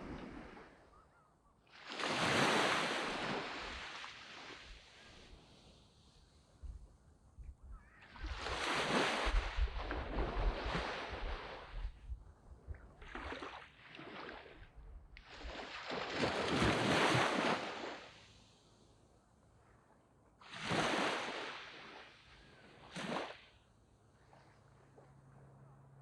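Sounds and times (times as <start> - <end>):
waves washing up a sandy beach: 0.0 - 1.0, 1.7 - 6.6, 8.0 - 12.0, 13.0 - 18.9, 20.4 - 23.6.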